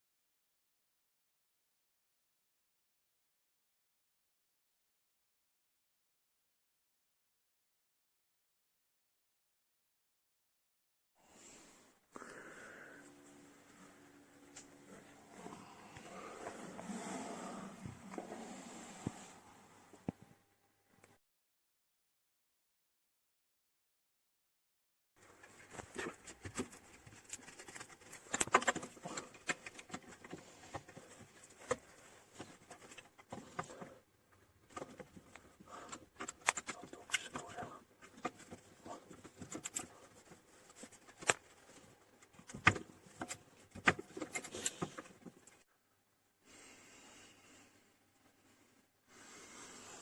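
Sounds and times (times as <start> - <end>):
clicks knocks and scrapes: 25.4 - 34.0, 34.6 - 45.6.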